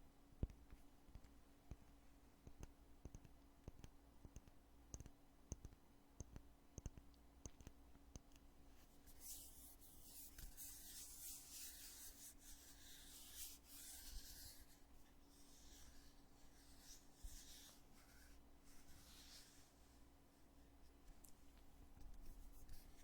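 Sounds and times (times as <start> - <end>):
scratchy rubbing on container: 9.1 - 19.7.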